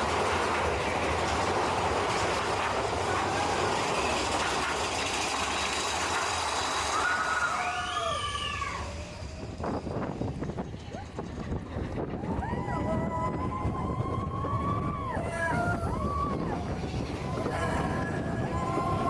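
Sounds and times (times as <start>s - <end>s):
roller coaster rattling rumble: 0.0s - 19.0s
pitched wail: 6.9s - 9.2s, 12.2s - 19.0s.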